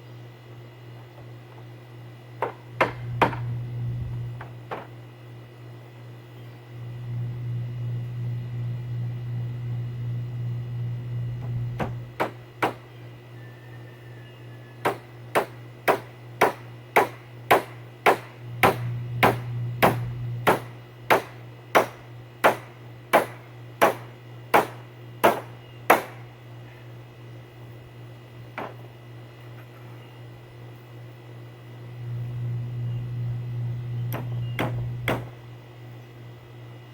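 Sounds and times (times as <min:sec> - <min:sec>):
low steady hum: 0:00.0 - 0:36.9
hammer strikes: 0:14.8 - 0:26.2.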